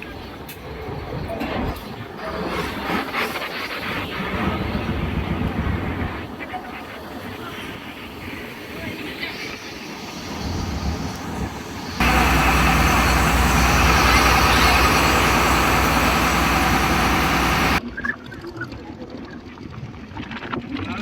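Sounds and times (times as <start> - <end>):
boat engine running: 10.2 - 17.8.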